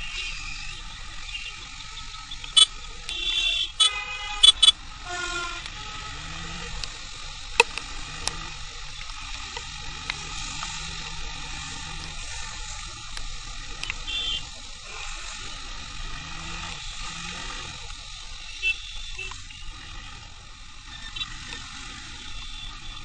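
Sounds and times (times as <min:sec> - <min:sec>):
motorcycle riding on wet road: 0:00.0 - 0:23.0
vehicle horns honking: 0:02.5 - 0:06.3, 0:13.9 - 0:15.4, 0:18.5 - 0:19.6.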